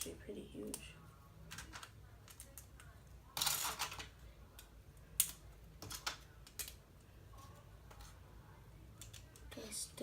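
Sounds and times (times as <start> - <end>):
plastic pieces clicking: 1.5 - 6.8.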